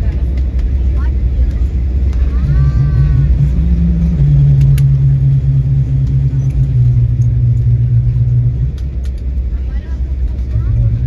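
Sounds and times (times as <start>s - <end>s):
jet engine hum: 0.0s - 11.0s
low cabin rumble: 0.0s - 11.0s.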